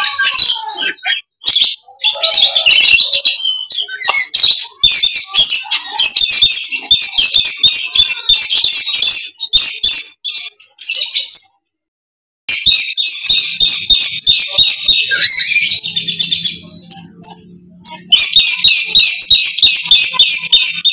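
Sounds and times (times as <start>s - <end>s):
lories screeching: 12.5s - 20.9s.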